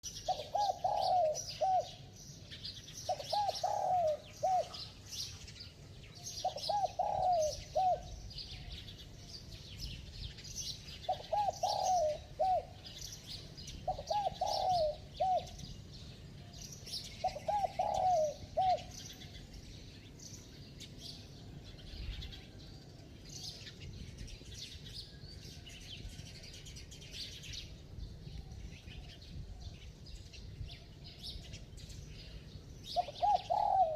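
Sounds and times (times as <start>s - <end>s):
small birds chirping: 0.0s - 33.9s
dove cooing: 0.1s - 2.2s, 2.8s - 5.3s, 6.2s - 8.8s, 10.9s - 16.0s, 16.9s - 19.4s, 32.8s - 33.9s.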